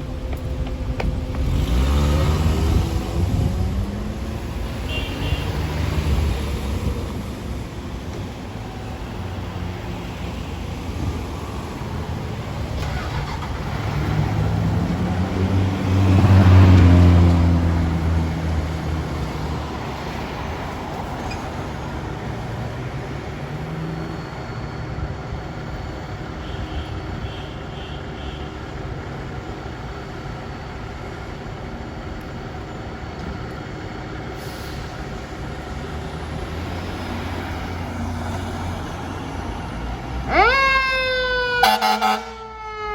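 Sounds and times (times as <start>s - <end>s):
traffic engine and road noise: 0.0s - 42.9s
heavy vehicle passing: 8.4s - 24.4s, 34.0s - 42.9s.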